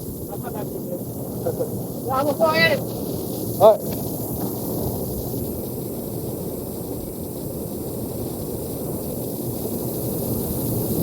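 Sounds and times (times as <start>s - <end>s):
waterfall and creek rushing: 2.1s - 2.9s.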